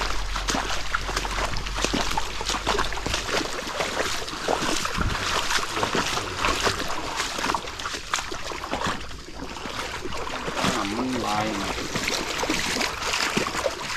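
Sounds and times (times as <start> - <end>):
wind rumble on microphone: 0.0 - 7.6
water sloshing and splashing: 0.0 - 13.9.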